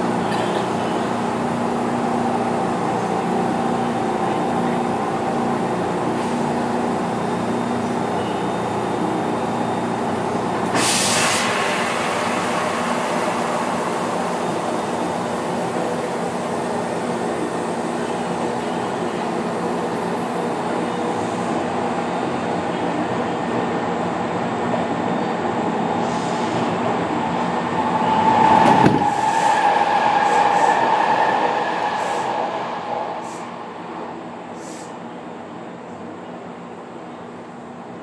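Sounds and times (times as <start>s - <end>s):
hiss of released air: 10.7s - 17.2s, 31.8s - 32.4s, 33.2s - 33.6s, 34.6s - 35.0s.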